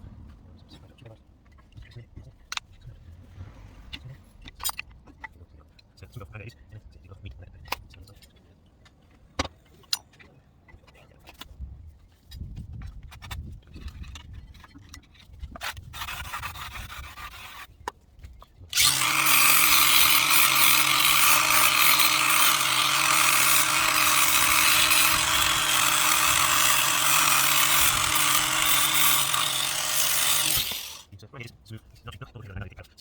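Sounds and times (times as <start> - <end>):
handheld power tool running: 18.7 - 31.1.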